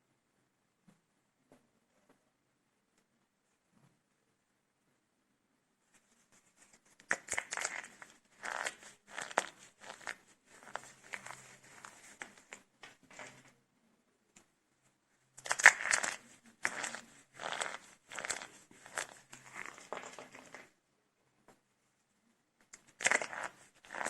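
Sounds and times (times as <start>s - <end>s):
dry soap crunching and crackling: 6.9s - 13.5s, 15.4s - 20.7s, 22.6s - 24.0s.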